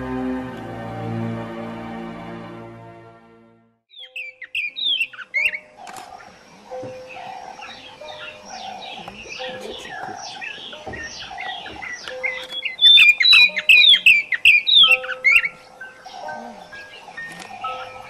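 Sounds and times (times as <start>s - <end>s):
low musical drone: 0.0s - 3.7s
birds chirping: 3.9s - 18.0s.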